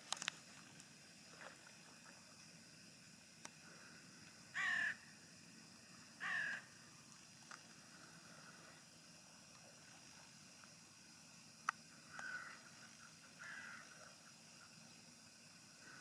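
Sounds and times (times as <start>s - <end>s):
crow cawing: 4.6s - 5.0s, 6.2s - 6.7s, 12.1s - 12.7s, 13.4s - 13.9s.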